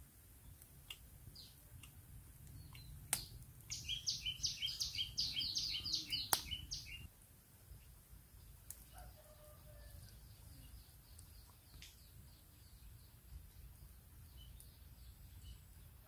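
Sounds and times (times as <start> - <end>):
bird singing falling notes: 2.6 - 7.1.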